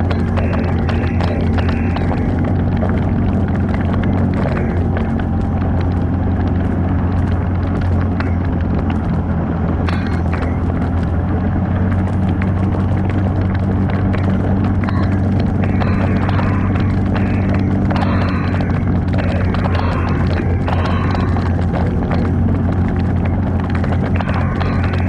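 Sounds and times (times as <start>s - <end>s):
knocks and rattles: 0.0s - 25.0s
vehicle engine running: 0.0s - 25.0s.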